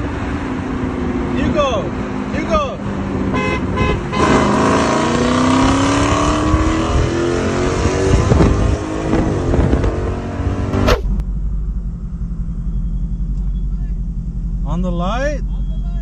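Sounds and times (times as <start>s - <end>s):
car engine accelerating hard: 4.2s - 11.3s
steady low engine rumble: 10.8s - 16.0s.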